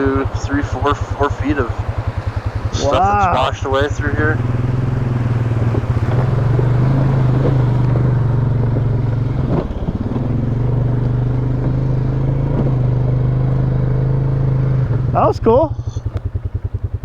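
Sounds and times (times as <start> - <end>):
atv engine droning: 0.0 - 17.0.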